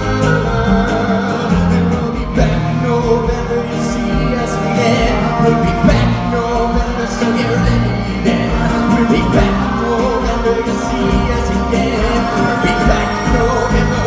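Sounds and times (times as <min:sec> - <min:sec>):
live band music: 0:00.0 - 0:14.0
person singing: 0:00.0 - 0:14.0.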